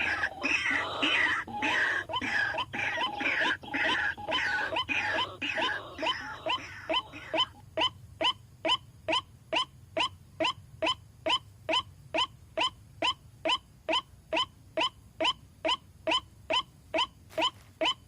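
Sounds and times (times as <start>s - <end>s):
waterhen calling: 0.0s - 7.9s.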